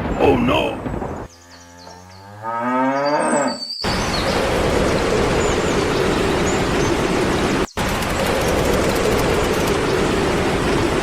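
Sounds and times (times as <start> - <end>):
cow mooing: 1.5 - 3.6
loud noisy rumble: 3.9 - 11.0.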